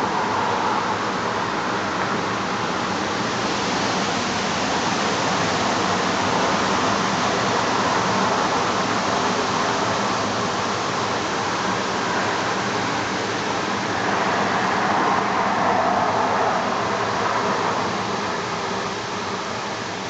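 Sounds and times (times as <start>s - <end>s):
strong wind blowing: 12.0s - 18.6s.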